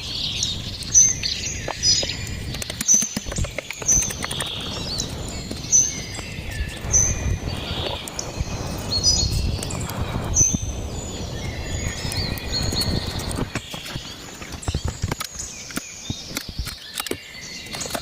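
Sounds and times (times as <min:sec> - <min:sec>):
birds chirping: 0:00.0 - 0:18.0
small knocks and clicks: 0:01.7 - 0:04.8, 0:13.2 - 0:18.0.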